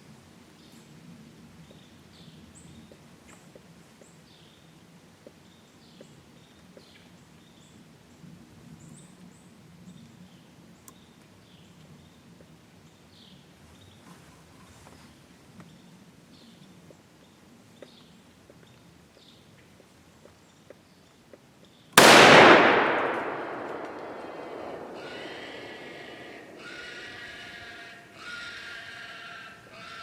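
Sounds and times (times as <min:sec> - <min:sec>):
low outdoor rumble: 0:22.0 - 0:27.7.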